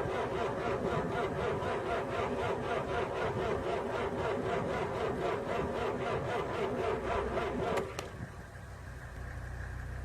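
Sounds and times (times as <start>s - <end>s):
tractor starter cranking: 0.0s - 8.2s
engine catching click: 5.8s - 8.3s.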